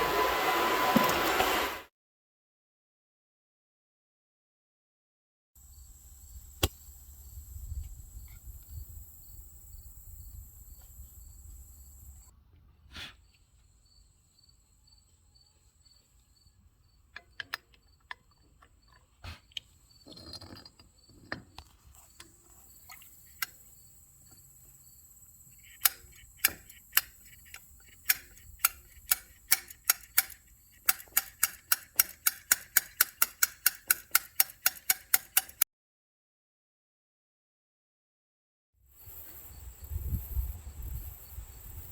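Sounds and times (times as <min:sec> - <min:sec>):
crickets chirping: 0:05.6 - 0:12.3, 0:13.2 - 0:35.6, 0:39.0 - 0:41.9
ratchet wrench clicking: 0:25.6 - 0:35.6.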